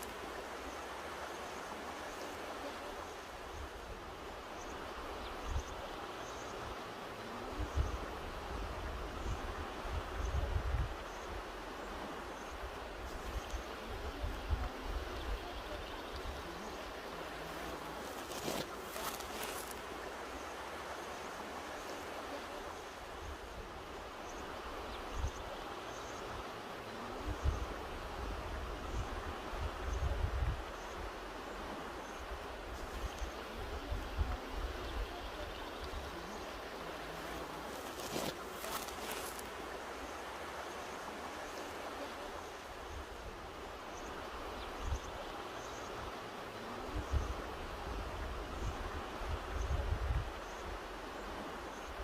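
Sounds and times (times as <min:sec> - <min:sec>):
river rushing over rocks: 0:00.0 - 0:52.0
wind rumble on microphone: 0:07.4 - 0:12.2, 0:27.0 - 0:36.3, 0:46.0 - 0:52.0.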